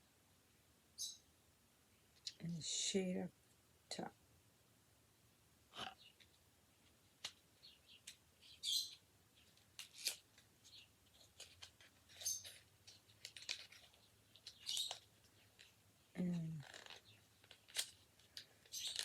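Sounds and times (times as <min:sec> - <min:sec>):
pencil packaging clicks: 0:09.4 - 0:15.8, 0:16.6 - 0:19.0
packaging rustling: 0:11.1 - 0:15.8.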